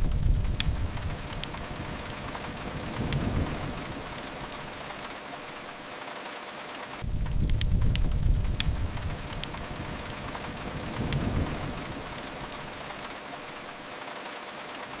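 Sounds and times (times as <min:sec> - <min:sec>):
low rumble: 0:00.0 - 0:05.0, 0:07.0 - 0:13.1
steady rain: 0:00.0 - 0:15.0
wood fire crackling: 0:00.0 - 0:15.0.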